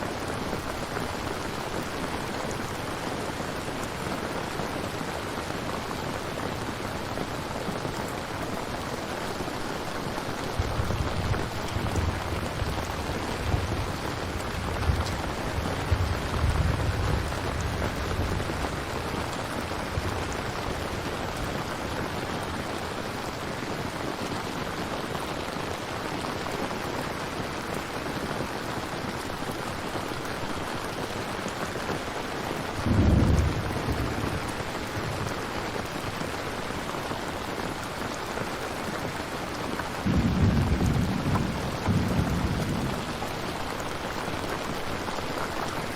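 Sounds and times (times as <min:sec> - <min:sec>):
steady rain: 0:00.0 - 0:45.9
thunder rumbling: 0:10.5 - 0:22.2, 0:32.8 - 0:36.0, 0:40.0 - 0:45.2
loud thunderclap: 0:10.6 - 0:21.6, 0:32.8 - 0:35.5, 0:40.0 - 0:43.7.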